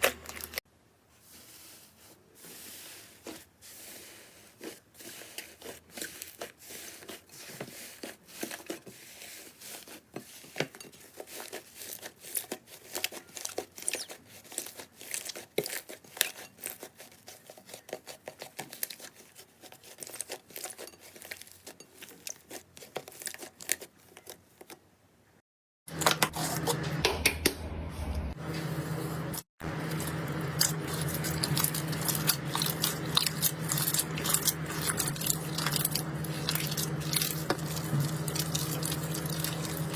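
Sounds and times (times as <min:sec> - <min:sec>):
low steady hum: 0:25.9 - 0:39.9.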